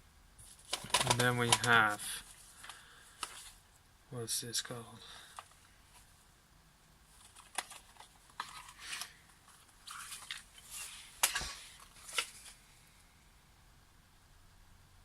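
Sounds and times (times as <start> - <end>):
crinkly rustles: 0.4 - 3.6, 7.1 - 12.8
plastic case clicks: 0.7 - 1.8.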